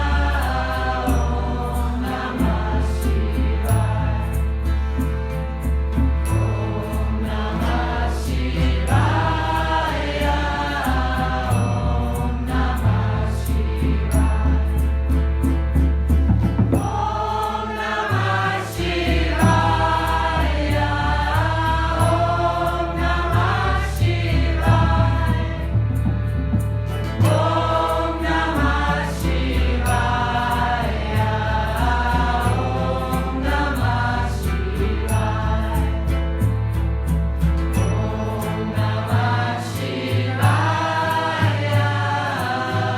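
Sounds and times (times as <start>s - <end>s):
group singing a chant: 0.0s - 5.1s, 6.3s - 15.2s, 16.8s - 26.2s, 27.1s - 36.8s, 37.7s - 42.9s
instrumental backing with bass: 0.0s - 42.9s.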